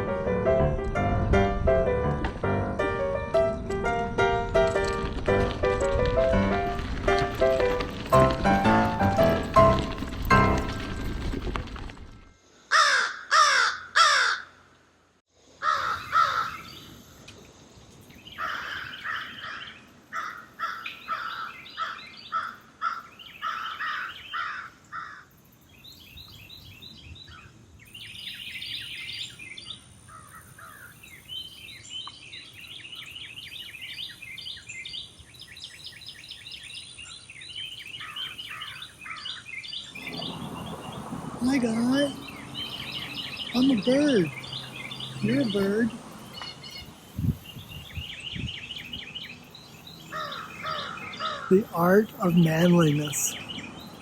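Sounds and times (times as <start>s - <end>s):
crow cawing: 12.7s - 14.6s, 15.6s - 16.7s, 18.4s - 25.3s, 50.1s - 51.5s
birds chirping and trilling: 15.6s - 17.2s, 17.8s - 54.0s.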